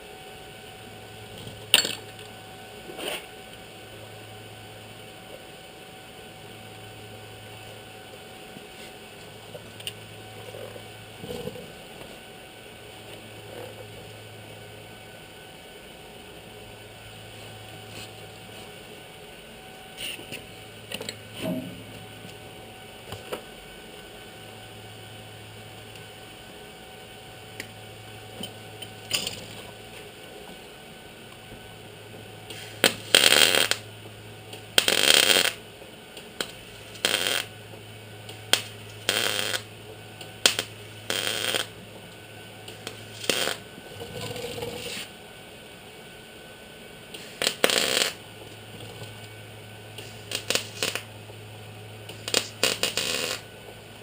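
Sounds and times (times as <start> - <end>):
low steady hum: 0.0 - 54.0
welder bursts: 32.5 - 33.8, 34.6 - 35.6, 36.3 - 37.6, 38.3 - 39.7, 40.3 - 41.8, 42.7 - 43.7, 47.1 - 48.2, 50.0 - 51.1, 52.1 - 53.5.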